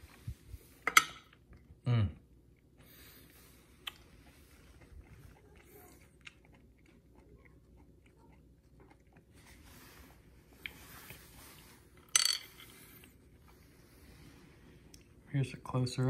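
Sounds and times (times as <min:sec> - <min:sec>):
chewing and mouth sounds: 0:01.3 - 0:11.2.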